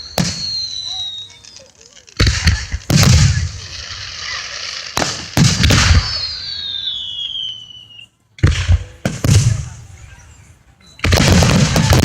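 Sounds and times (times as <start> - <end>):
high falling whistle: 0.0 - 1.6, 5.8 - 8.2
fireworks bangs: 0.0 - 7.8, 8.4 - 10.2, 11.0 - 12.0
fireworks crackling: 0.0 - 10.2, 11.0 - 12.0.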